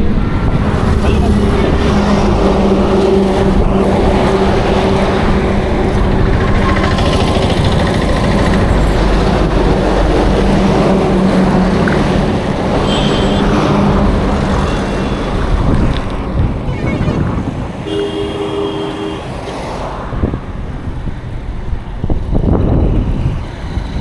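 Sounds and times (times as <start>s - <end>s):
road and wind noise: 0.0s - 24.0s
vehicle engine humming: 0.0s - 24.0s.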